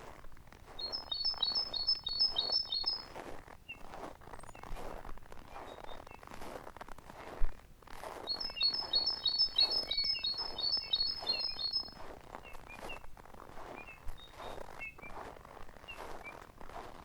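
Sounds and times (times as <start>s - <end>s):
footsteps in snow: 0.0s - 17.0s
songbird chirping: 0.7s - 4.8s, 5.5s - 6.3s, 8.2s - 16.5s.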